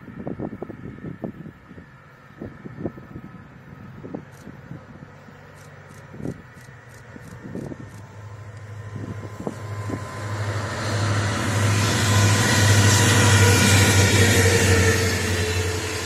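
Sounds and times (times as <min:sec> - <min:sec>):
locomotive engine drone: 0:00.0 - 0:16.0
train wagons rushing past: 0:04.0 - 0:16.0.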